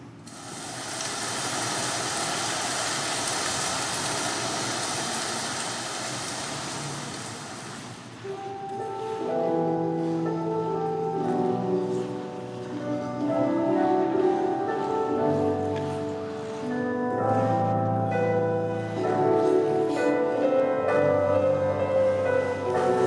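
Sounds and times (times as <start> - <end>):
audience applauding: 0.3 - 7.8
slow held music notes: 8.2 - 23.0.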